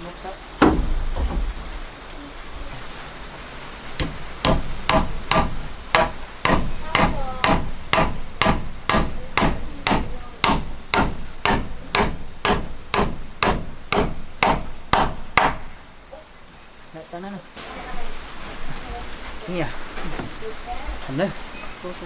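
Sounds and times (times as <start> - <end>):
hammer blows with metallic ring: 4.0 - 15.8.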